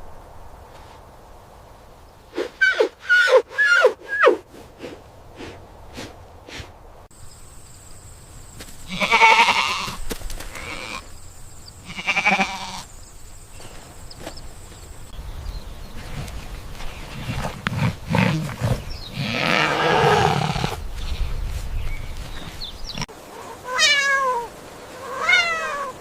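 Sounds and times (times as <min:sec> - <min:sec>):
goat bleating: 0:08.9 - 0:11.0, 0:11.8 - 0:12.8.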